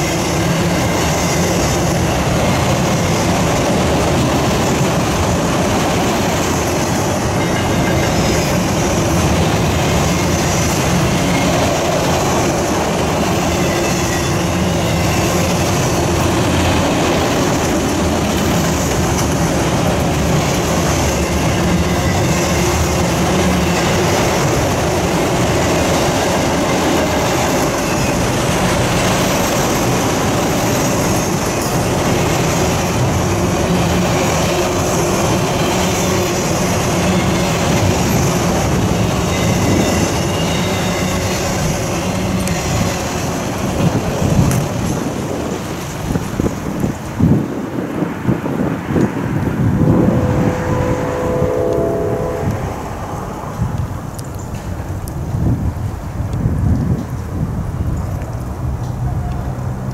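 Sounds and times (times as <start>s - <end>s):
wheels clacking over rail joints: 0.0s - 47.4s
train wheels rumbling on rails: 0.0s - 59.9s.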